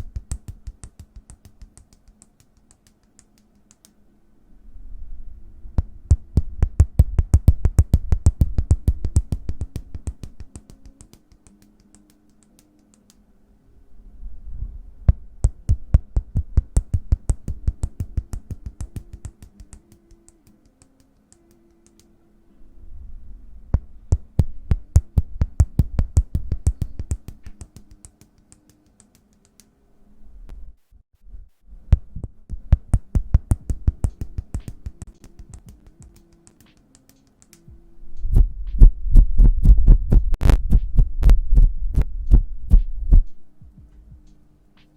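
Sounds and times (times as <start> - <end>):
hands tapping rapidly: 0.0 - 4.0, 6.1 - 13.2, 15.4 - 22.0, 24.1 - 29.6, 32.2 - 37.7.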